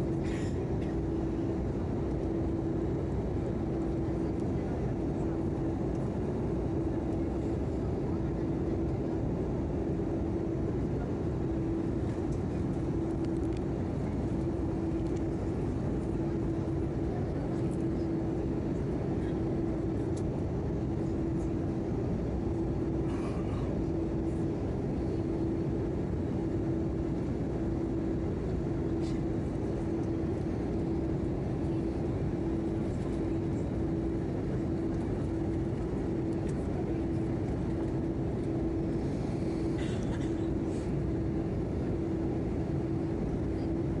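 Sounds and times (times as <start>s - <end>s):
aircraft cabin engine rush: 0.0s - 44.0s.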